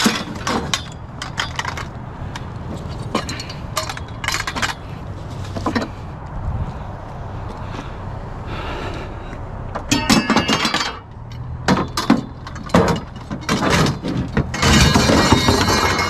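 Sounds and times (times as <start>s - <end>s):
scrap metal rattling: 0.0s - 6.1s, 9.8s - 16.0s.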